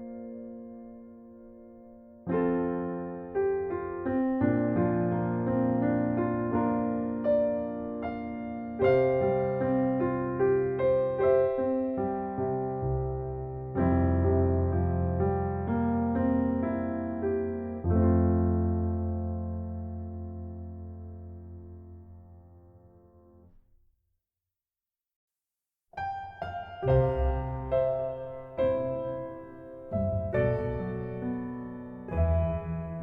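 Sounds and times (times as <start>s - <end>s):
gentle piano music: 0.0s - 23.6s, 26.0s - 33.0s.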